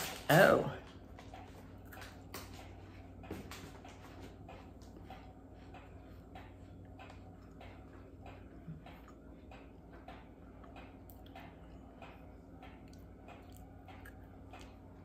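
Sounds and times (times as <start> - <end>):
chewing crunchy cookie: 0.0 - 4.4, 12.1 - 15.0
low room hum: 0.0 - 15.0.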